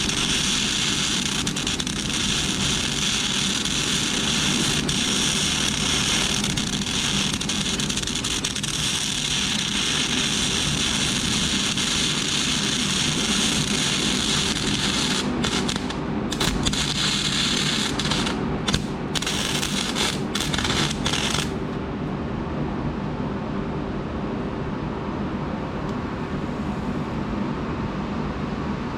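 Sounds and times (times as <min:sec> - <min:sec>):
welding arc crackling: 0:00.0 - 0:21.6.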